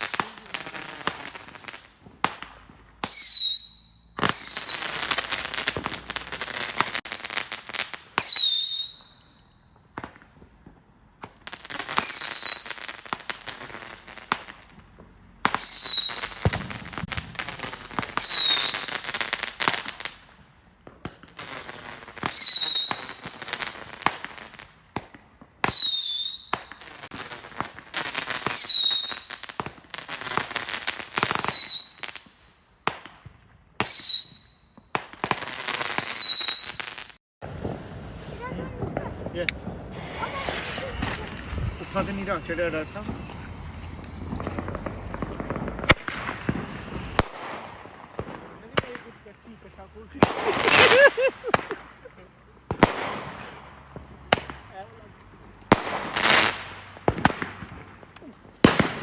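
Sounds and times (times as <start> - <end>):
falling whistle of fireworks: 0.0 - 14.8, 15.4 - 20.2, 20.9 - 33.2, 33.8 - 49.0
fireworks bursting: 0.0 - 59.0
fireworks crackling: 0.0 - 59.0.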